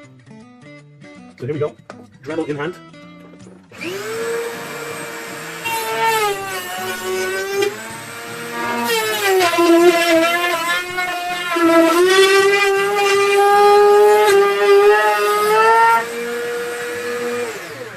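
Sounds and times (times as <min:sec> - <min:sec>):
rotary tool high whine: 0:03.7 - 0:17.9.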